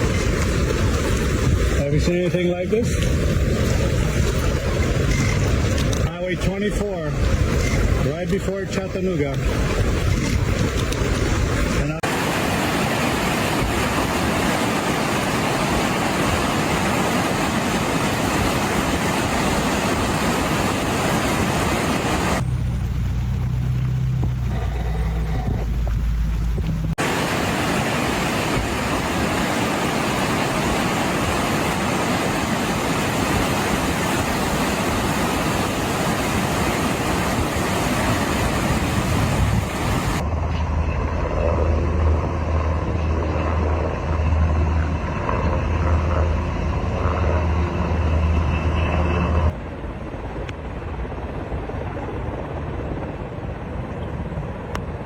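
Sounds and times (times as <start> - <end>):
rain and tyre spray through water: 0.0 - 8.2, 9.3 - 40.2
low hum: 0.0 - 54.9
low engine rumble: 22.1 - 27.2, 38.0 - 54.8
traffic noise: 22.2 - 27.6.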